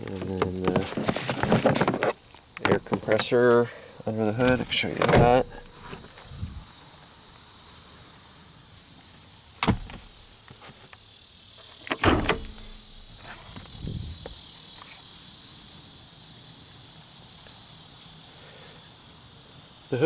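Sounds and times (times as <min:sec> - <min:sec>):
truck latch clunks: 0:00.0 - 0:03.4, 0:04.3 - 0:06.6, 0:09.6 - 0:10.3, 0:11.7 - 0:14.4
insect chirring: 0:00.0 - 0:18.2.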